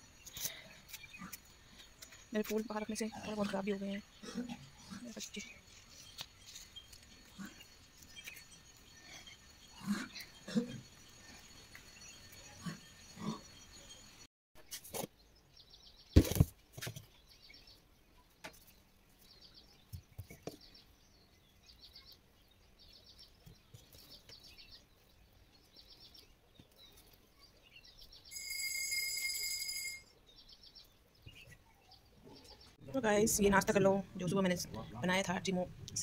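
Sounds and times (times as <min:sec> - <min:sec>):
small bird chirping: 0:17.0 - 0:32.8
steady high tone: 0:28.3 - 0:30.1.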